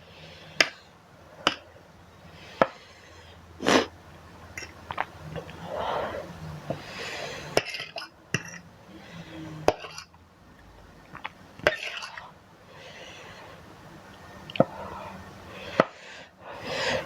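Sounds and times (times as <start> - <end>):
soft eating noises: 4.6 - 15.8.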